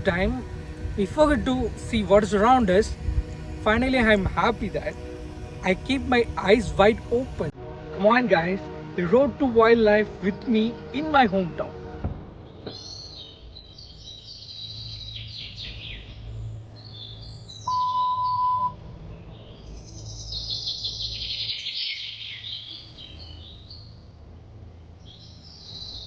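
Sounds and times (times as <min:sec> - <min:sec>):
low rumble: 0:00.0 - 0:12.8
small birds chirping: 0:12.5 - 0:24.1
steady pure beep: 0:17.6 - 0:18.8.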